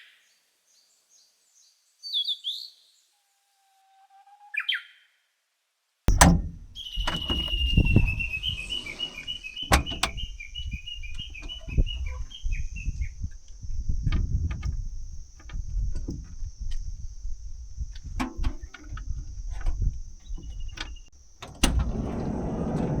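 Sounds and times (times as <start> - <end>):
bird chirping: 6.1 - 13.4
low rumbling: 6.1 - 23.0.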